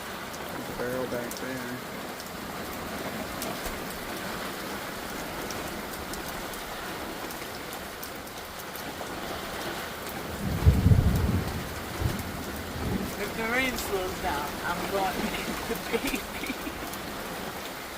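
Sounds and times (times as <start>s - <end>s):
heavy rain pouring: 0.0s - 17.9s
water drips ticking: 0.0s - 17.9s
low rumble of thunder: 10.2s - 15.8s.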